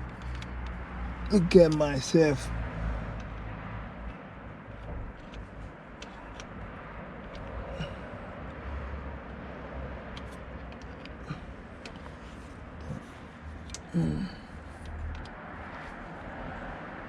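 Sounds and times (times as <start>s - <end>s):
faint scattered clicks: 0.0s - 1.9s, 14.6s - 15.4s.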